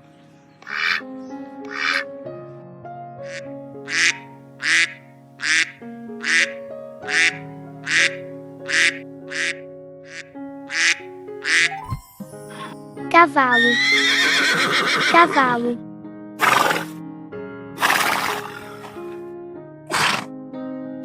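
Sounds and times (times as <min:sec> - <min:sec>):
soft background music: 0:00.0 - 0:21.0
duck quacking: 0:00.6 - 0:01.0, 0:01.7 - 0:02.0, 0:03.2 - 0:11.8.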